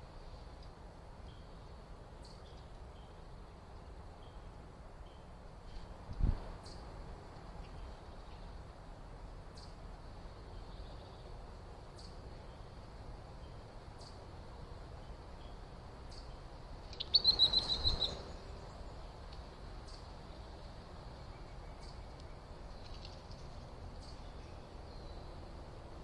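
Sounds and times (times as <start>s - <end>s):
bird calling sharp notes: 16.9s - 18.2s.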